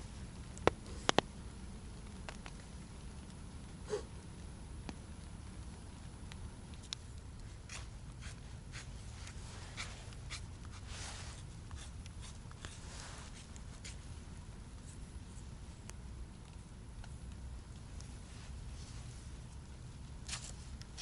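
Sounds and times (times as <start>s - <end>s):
rustles and small clicks: 0.0s - 3.4s, 4.3s - 21.0s
steady low rumble: 0.0s - 21.0s
swishing rustles: 7.8s - 11.5s.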